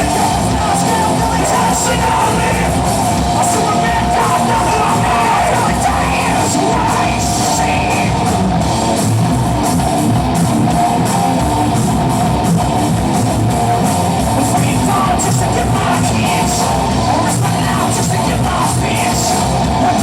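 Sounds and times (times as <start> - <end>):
shouted vocals: 0.0 - 8.5, 14.4 - 20.0
distorted electric guitar: 0.0 - 20.0
drums: 0.0 - 20.0.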